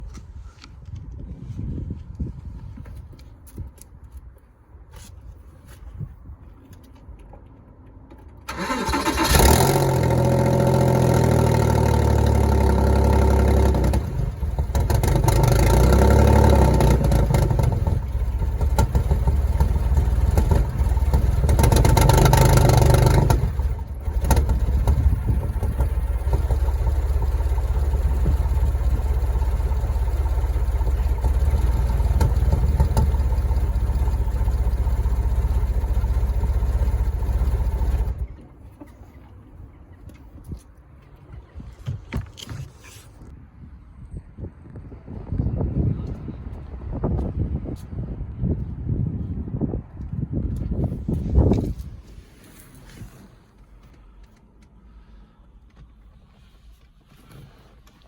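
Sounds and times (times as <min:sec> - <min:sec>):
engine revving: 0:08.5 - 0:38.2
car engine starting and idling roughly: 0:08.5 - 0:38.5.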